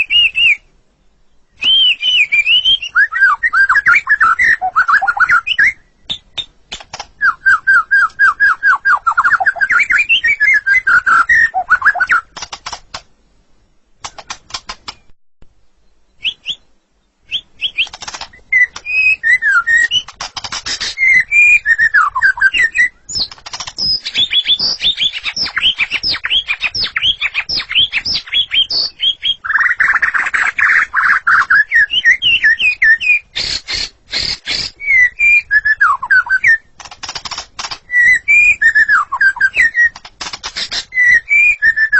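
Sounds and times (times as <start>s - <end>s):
songbird singing: 0.0s - 41.9s
dry clicks: 6.1s - 7.3s, 12.1s - 13.1s, 14.0s - 15.1s, 17.6s - 21.2s, 23.1s - 28.3s, 36.7s - 41.8s.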